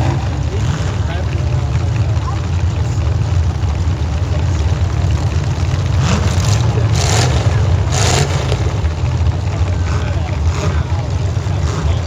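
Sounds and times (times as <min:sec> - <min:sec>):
car engines rumbling: 0:00.0 - 0:12.0
noisy engine bursts: 0:00.0 - 0:12.0.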